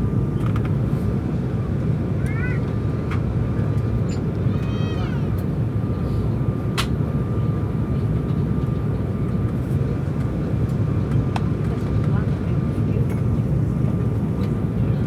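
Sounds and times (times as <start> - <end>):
airliner cabin rush: 0.0 - 3.4.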